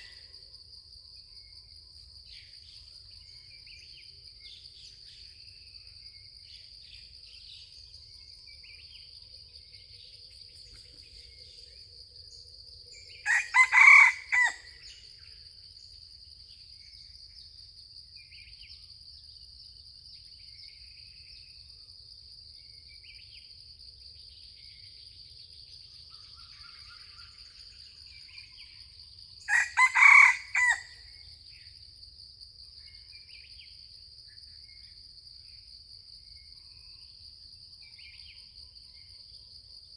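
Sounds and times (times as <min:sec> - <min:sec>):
rooster crowing: 0:13.2 - 0:14.7, 0:29.5 - 0:31.0.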